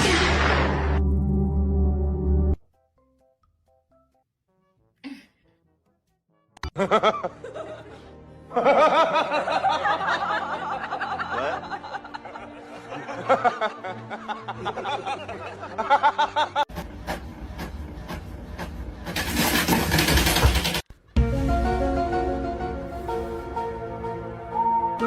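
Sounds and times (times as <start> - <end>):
background music: 0.0 - 25.0.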